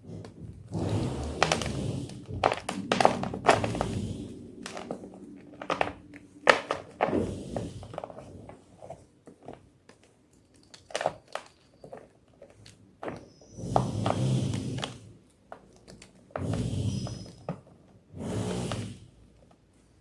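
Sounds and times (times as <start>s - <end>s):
chalk crunching and snapping: 0.8s - 7.3s.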